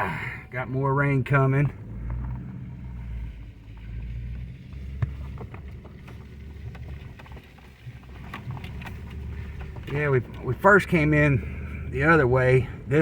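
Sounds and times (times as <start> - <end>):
vehicle rumble inside cab: 0.0 - 13.0.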